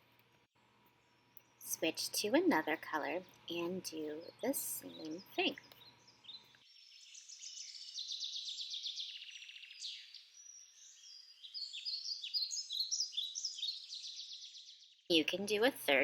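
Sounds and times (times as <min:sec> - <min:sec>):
songbirds singing: 0:00.9 - 0:16.0
bird trills: 0:04.2 - 0:15.0
short bird chirps: 0:05.6 - 0:15.1.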